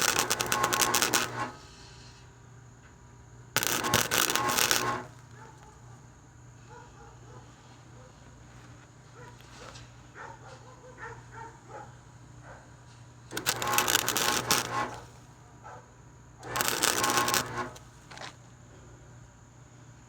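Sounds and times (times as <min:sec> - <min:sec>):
welding arc crackling: 0:00.0 - 0:01.7, 0:03.6 - 0:05.4, 0:13.3 - 0:15.3, 0:16.4 - 0:18.2.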